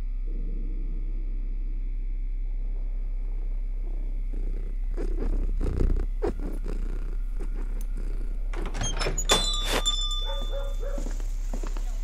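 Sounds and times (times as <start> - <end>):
low hum: 0.0 - 12.0
cat purring: 2.4 - 8.6.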